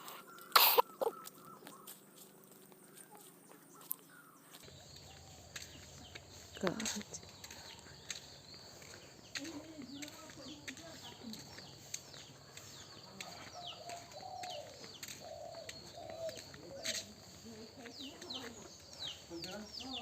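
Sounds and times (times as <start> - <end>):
low wavering bird cooing: 0.0 - 2.0, 12.7 - 17.3.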